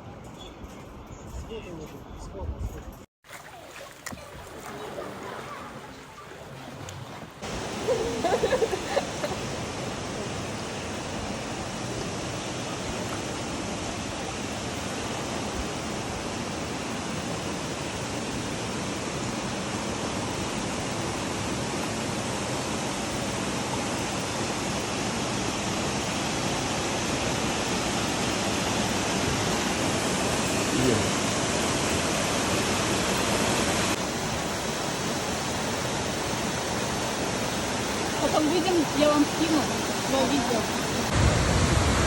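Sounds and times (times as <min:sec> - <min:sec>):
rushing water: 0:03.2 - 0:42.0.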